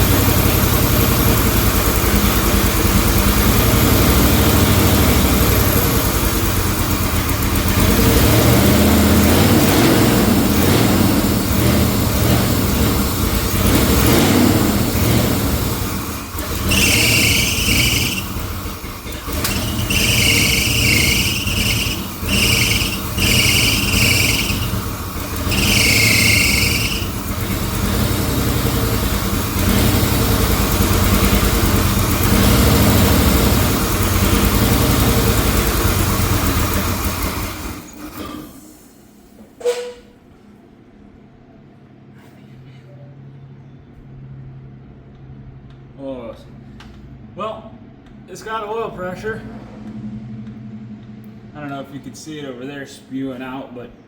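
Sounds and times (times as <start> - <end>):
loud engine running: 0.0 - 38.3, 48.9 - 52.1
shrill squeal: 16.6 - 18.4, 19.4 - 24.8, 25.4 - 27.2.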